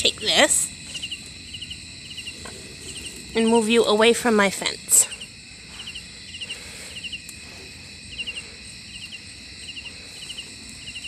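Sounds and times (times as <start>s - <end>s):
high-pitched insect drone: 0.0s - 11.0s
insects chirping: 0.0s - 11.0s.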